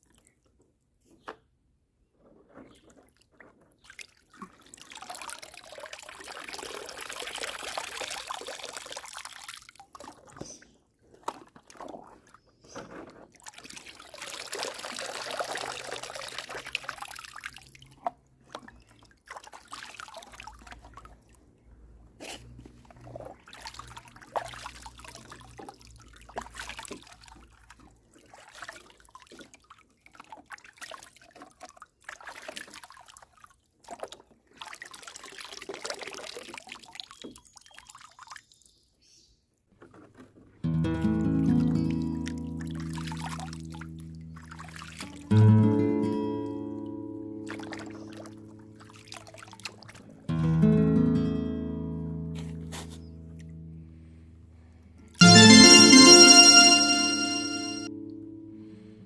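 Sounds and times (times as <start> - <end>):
water pouring and trickling: 2.6 - 12.4, 13.2 - 21.5, 22.8 - 38.6, 41.6 - 45.3, 47.5 - 50.2
water drips and splashes: 2.7 - 12.4, 13.3 - 21.6, 22.8 - 38.9, 41.7 - 45.3, 47.4 - 50.2.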